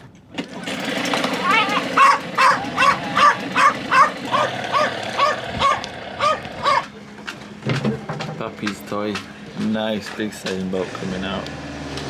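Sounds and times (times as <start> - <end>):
puppy barking: 1.4 - 6.9.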